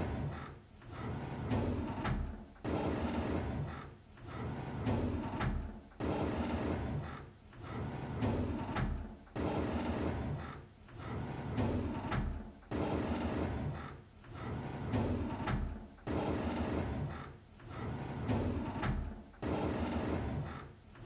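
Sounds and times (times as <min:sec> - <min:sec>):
drawer sliding open: 0:14.4 - 0:20.6.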